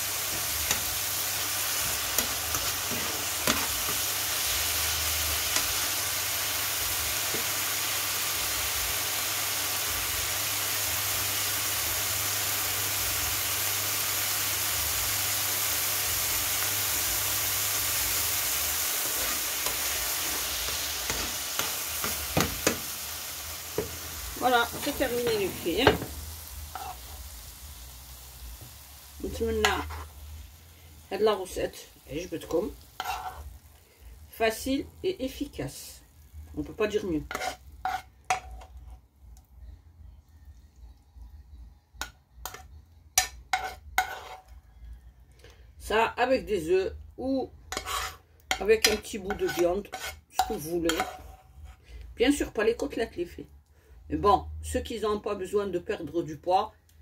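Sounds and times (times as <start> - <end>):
vegetables sizzling in oil: 0.0 - 39.1, 42.0 - 44.6, 45.8 - 53.9
metal spoon scraping pan: 1.8 - 4.5, 19.0 - 23.0, 26.7 - 27.2, 29.5 - 30.1, 33.0 - 33.5, 37.2 - 39.0, 42.4 - 44.6, 47.7 - 51.8.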